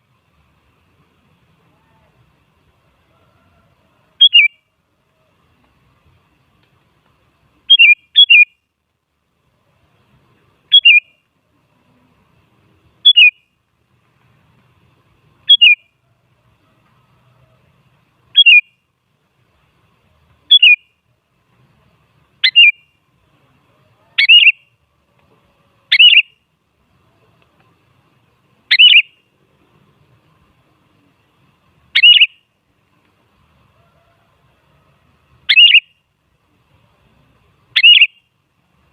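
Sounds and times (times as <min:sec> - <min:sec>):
bird calling sharply: 0:04.2 - 0:04.6, 0:07.7 - 0:08.6, 0:10.7 - 0:11.1, 0:13.0 - 0:13.4, 0:15.5 - 0:15.9, 0:18.3 - 0:18.7, 0:20.5 - 0:20.8, 0:22.4 - 0:22.8, 0:24.2 - 0:24.6, 0:25.9 - 0:26.4, 0:28.7 - 0:29.2, 0:31.9 - 0:32.4, 0:35.5 - 0:35.9, 0:37.8 - 0:38.2.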